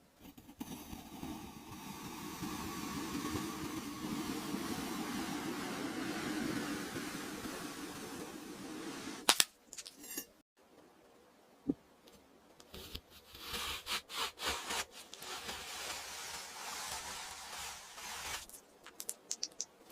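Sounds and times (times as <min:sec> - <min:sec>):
faint hiss: 0:00.6 - 0:09.3, 0:13.3 - 0:19.9
kinetic sand being cut: 0:00.6 - 0:09.3, 0:13.3 - 0:18.5.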